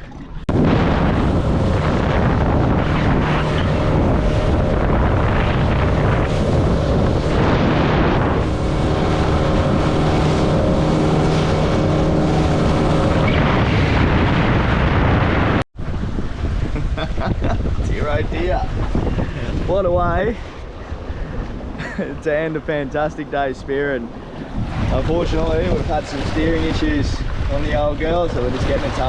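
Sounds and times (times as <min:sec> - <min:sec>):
outboard motor running: 0:00.0 - 0:15.1
wind noise on microphone: 0:00.0 - 0:29.0.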